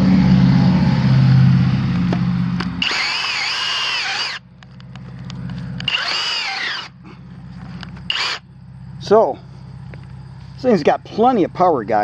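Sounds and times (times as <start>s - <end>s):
rotary hammer motor whine: 2.0s - 10.6s.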